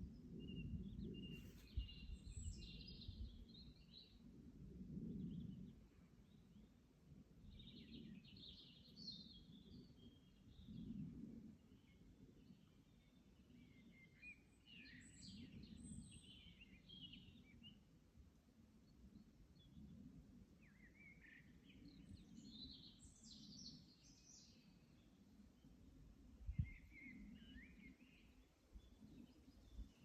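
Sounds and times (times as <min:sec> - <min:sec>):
songbird chirping: 0:11.9 - 0:17.8, 0:20.6 - 0:30.0.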